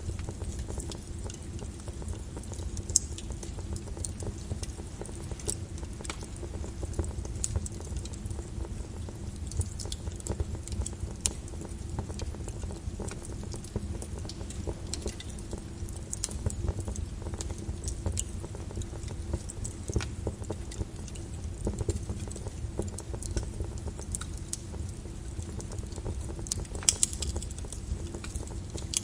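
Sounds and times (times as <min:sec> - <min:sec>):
lava crackles and pops: 0:00.0 - 0:29.0
lava low rumble: 0:00.0 - 0:29.0.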